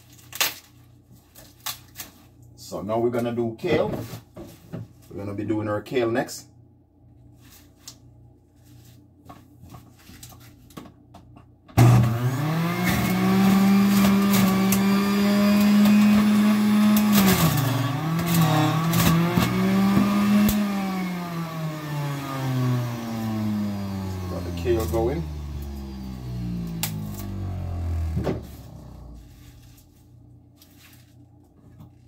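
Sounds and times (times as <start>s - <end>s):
electric juicer motor humming: 11.8s - 29.6s.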